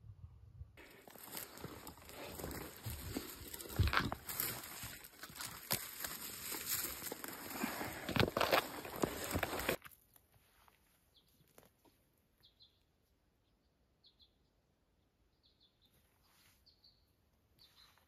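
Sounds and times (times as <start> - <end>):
faint high bird chirp: 12.4 - 18.0.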